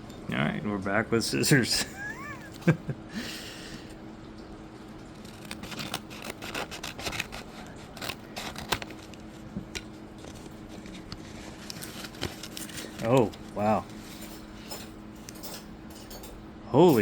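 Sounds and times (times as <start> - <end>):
scissors scraping tape: 5.2 - 13.5
scissors snipping: 5.2 - 13.5.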